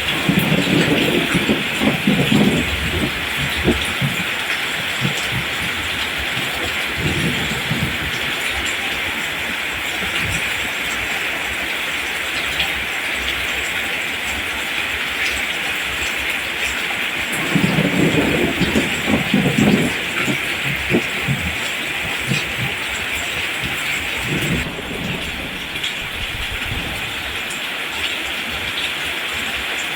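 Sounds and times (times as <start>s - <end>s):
low rumbling: 0.0s - 8.3s, 17.4s - 27.4s
rain falling on plants: 0.0s - 29.9s.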